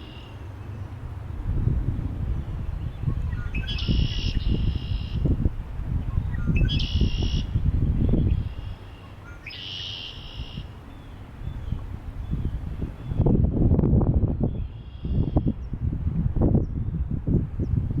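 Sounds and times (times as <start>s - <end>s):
bird calling: 0.0s - 0.9s, 2.9s - 5.3s, 6.1s - 13.2s
wind rumbling on microphone: 0.0s - 9.4s, 10.0s - 18.0s.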